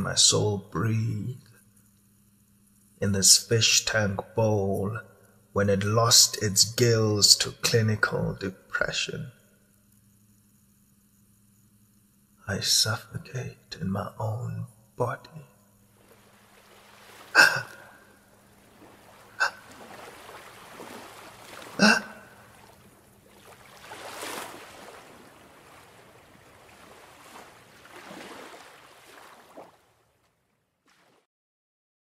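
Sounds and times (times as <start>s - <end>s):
rushing water-like noise: 15.9s - 30.1s
person gasping: 17.3s - 18.0s, 19.4s - 19.7s, 21.8s - 22.4s.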